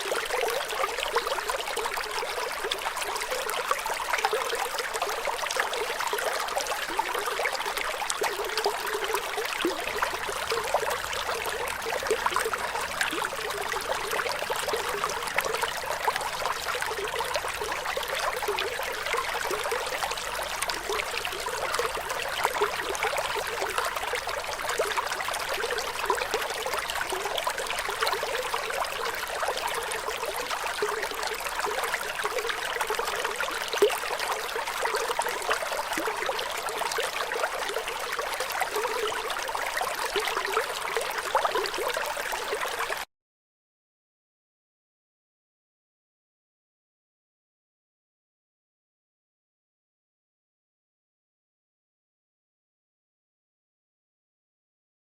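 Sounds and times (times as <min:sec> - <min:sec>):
water trickling: 0:00.0 - 0:43.0.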